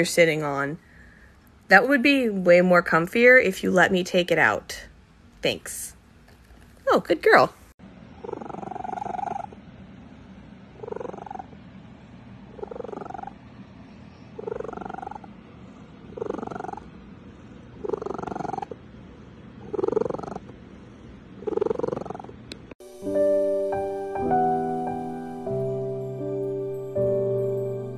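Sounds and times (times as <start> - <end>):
cat purring loudly: 8.1 - 9.6, 10.7 - 11.7, 12.4 - 13.4, 14.3 - 22.5.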